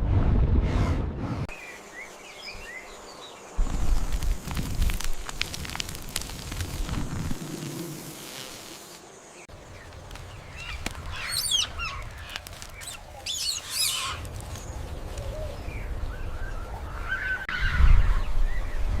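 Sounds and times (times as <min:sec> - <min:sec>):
birds calling: 0:09.4 - 0:17.6.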